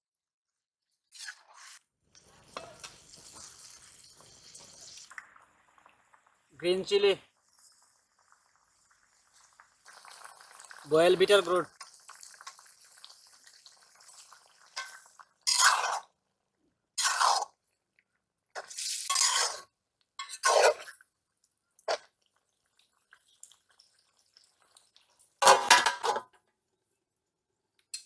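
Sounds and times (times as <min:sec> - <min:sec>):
metal spatula scraping wok: 0:01.1 - 0:01.8, 0:14.8 - 0:16.1, 0:17.0 - 0:17.6, 0:18.6 - 0:21.0
metal lid clattering on wok: 0:25.4 - 0:26.3.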